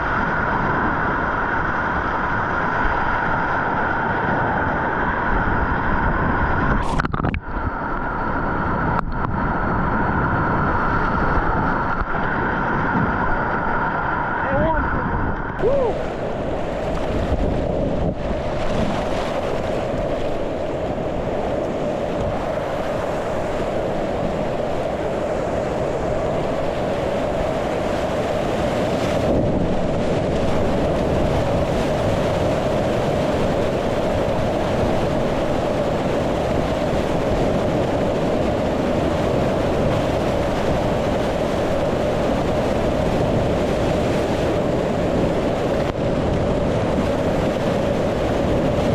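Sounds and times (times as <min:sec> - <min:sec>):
wind noise on microphone: 0:00.0 - 0:48.9
whitewater river rushing: 0:15.5 - 0:48.9.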